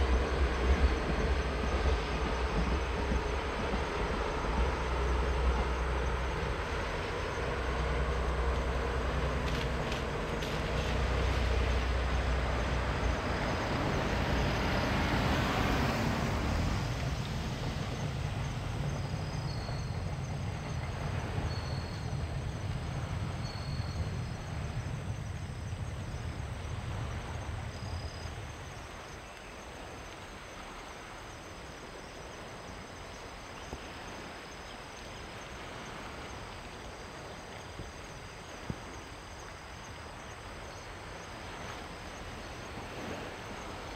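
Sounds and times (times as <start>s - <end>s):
freight train rumbling past: 0.0s - 29.8s
insects chirping: 0.0s - 43.9s.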